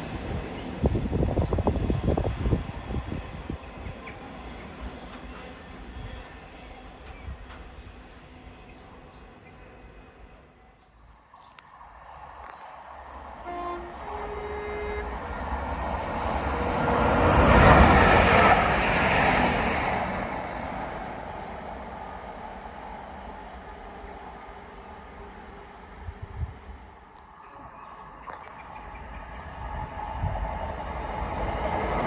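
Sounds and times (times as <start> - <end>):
train passing: 0.0 - 32.0
two-note train horn: 13.4 - 15.6.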